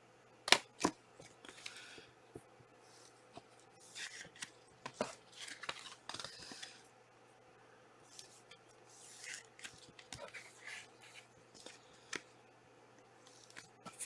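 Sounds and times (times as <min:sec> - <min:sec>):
cards rustling and sliding: 0:00.5 - 0:02.1, 0:03.0 - 0:06.9, 0:08.1 - 0:12.4, 0:13.3 - 0:14.0.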